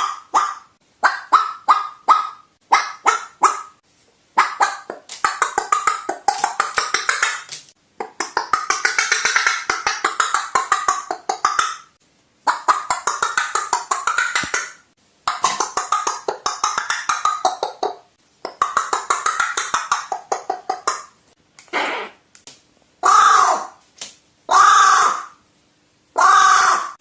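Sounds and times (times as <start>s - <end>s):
crow rattling call: 26.2s - 27.0s.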